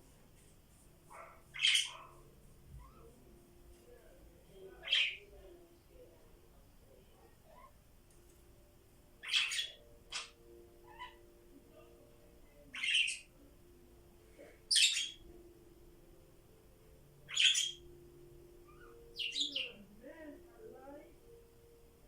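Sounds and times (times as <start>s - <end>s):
parrots harsh calls: 1.5s - 2.1s, 9.2s - 11.2s, 12.8s - 13.2s, 17.3s - 17.8s
faint chirps: 1.5s - 3.4s, 17.2s - 19.9s.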